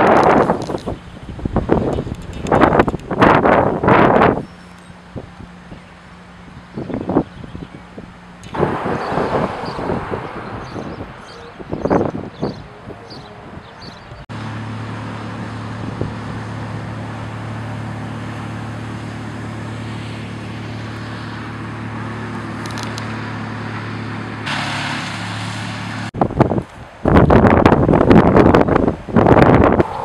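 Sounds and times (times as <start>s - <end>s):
engine running: 0.0s - 26.2s, 29.1s - 30.0s
hiss of noise: 24.4s - 26.0s.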